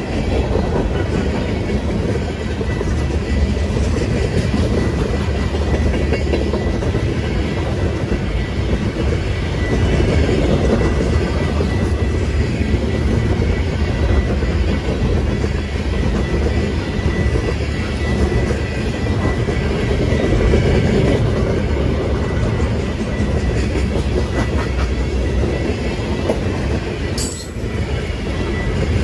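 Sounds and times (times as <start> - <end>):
train rumbling on rails: 0.0 - 29.0.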